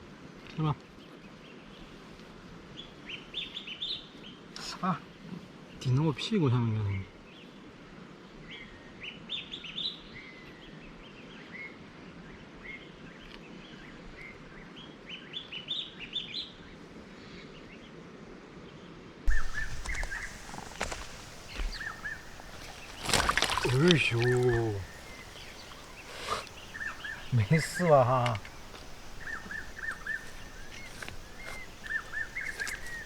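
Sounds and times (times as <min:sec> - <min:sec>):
small birds chirping: 0:19.3 - 0:33.0.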